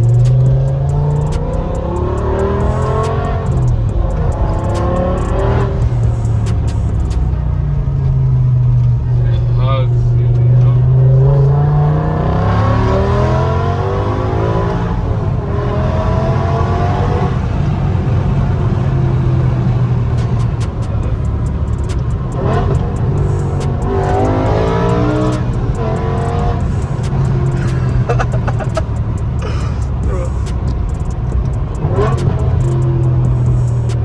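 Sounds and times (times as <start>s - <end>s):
sharp clicks: 0.0s - 7.4s, 20.2s - 34.0s
car engine revving: 0.0s - 34.0s.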